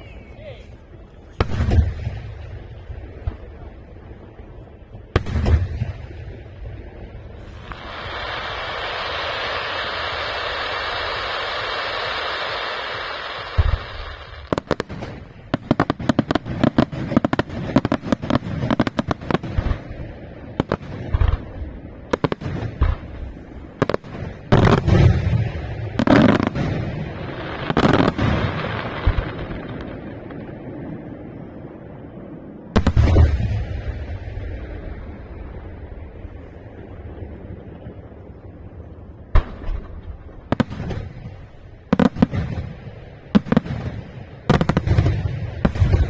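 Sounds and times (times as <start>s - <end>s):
firework bangs and crackles: 0.0s - 46.0s
heavy booming firework bursts: 1.3s - 46.0s
firework hiss: 5.8s - 30.0s.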